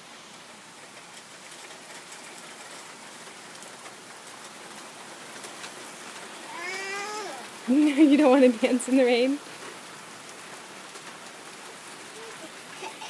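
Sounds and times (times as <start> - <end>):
steady rain hiss: 0.0 - 13.0
raindrops ticking: 0.3 - 13.0.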